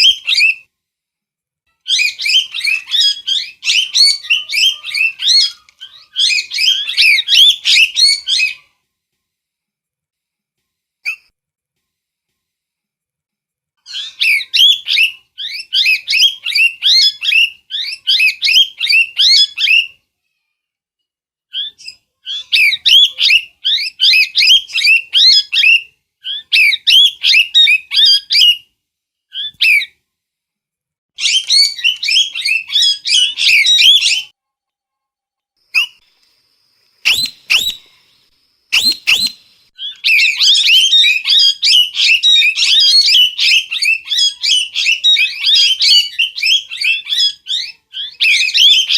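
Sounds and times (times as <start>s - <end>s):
parrot screeching: 1.9s - 8.7s, 13.8s - 19.9s, 21.6s - 28.6s, 29.3s - 29.9s, 31.2s - 34.3s, 37.0s - 37.8s, 38.7s - 48.9s.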